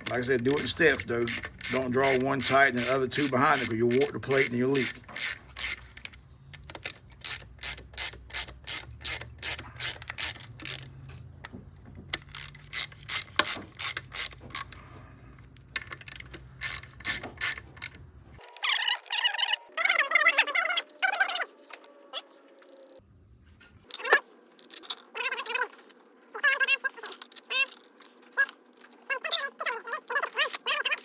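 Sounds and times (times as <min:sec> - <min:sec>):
hand ratchet clicking: 0:00.0 - 0:05.8, 0:12.2 - 0:14.7, 0:15.9 - 0:23.0, 0:23.9 - 0:31.0.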